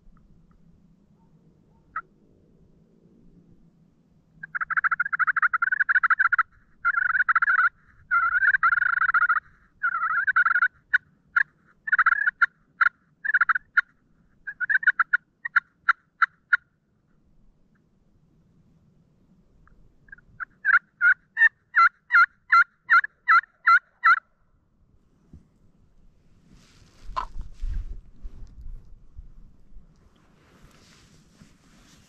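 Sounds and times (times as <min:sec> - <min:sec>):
turkey calls: 0:04.4 - 0:16.7, 0:20.0 - 0:24.3.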